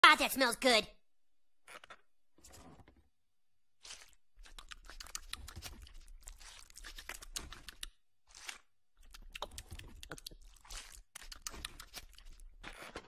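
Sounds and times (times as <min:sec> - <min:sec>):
crispy food chewing crackles: 0:03.8 - 0:13.0.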